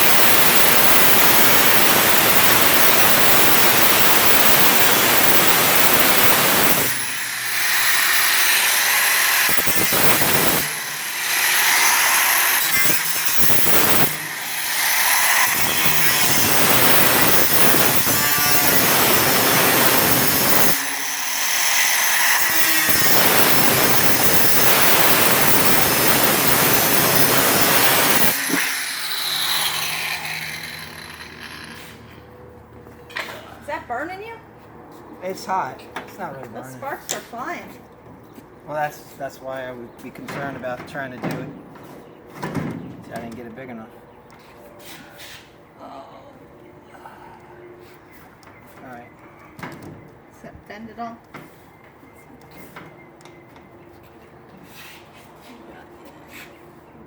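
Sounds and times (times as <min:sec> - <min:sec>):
power saw cutting metal: 0:00.0 - 0:32.2.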